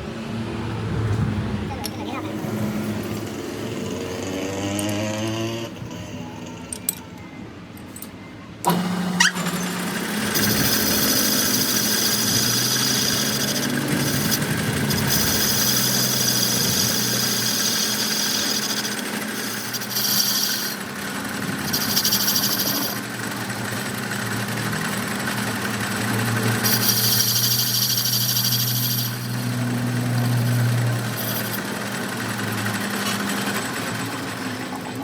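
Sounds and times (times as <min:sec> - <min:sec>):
machine motor running: 0:02.3 - 0:06.9, 0:07.8 - 0:35.0
high squeal: 0:09.2 - 0:20.9, 0:26.6 - 0:31.8.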